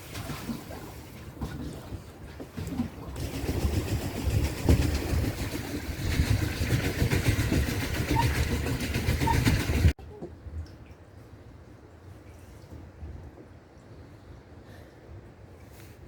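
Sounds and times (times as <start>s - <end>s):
boat rushing over water: 0.0s - 10.0s.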